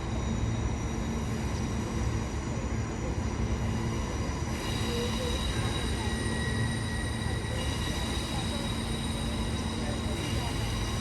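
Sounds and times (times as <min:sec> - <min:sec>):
electric train rumbling: 0:00.0 - 0:11.0.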